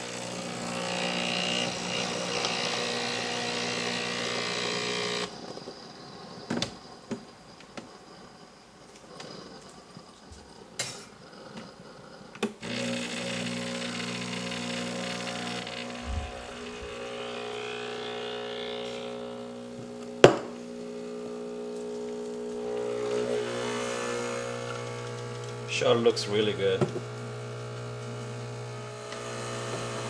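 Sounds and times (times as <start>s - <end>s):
espresso machine pump humming: 0.0s - 6.1s, 12.6s - 30.0s.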